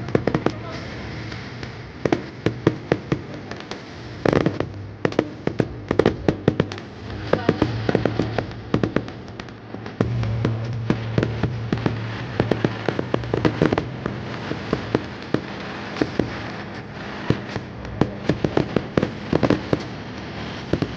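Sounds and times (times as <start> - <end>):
distant fireworks bursts: 0.0 - 20.9
fireworks bangs and pops: 0.0 - 20.9
low steady hum: 0.0 - 20.9.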